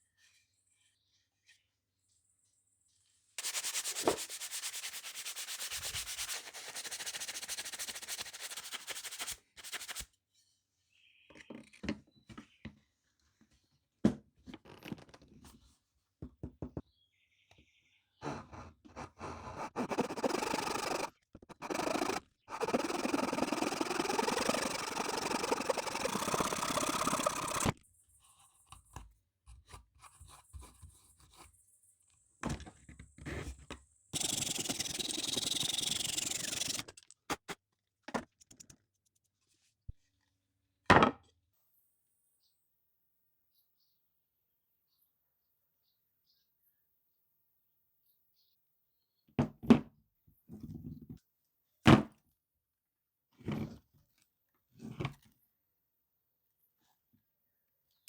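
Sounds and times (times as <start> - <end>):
sandpaper rubbing: 3.4 - 10.1, 19.0 - 27.8, 34.2 - 37.0
short scrapes and knocks: 18.2 - 27.8, 32.4 - 37.6.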